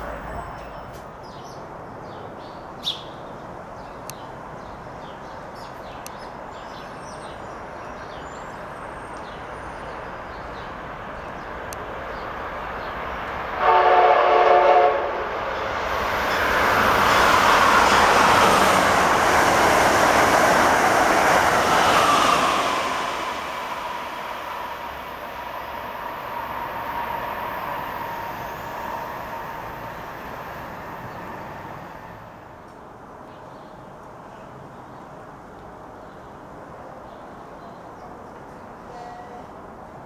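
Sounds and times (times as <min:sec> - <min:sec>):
train rushing past: 0:08.6 - 0:32.7
train horn blast: 0:13.6 - 0:15.4, 0:38.9 - 0:39.5.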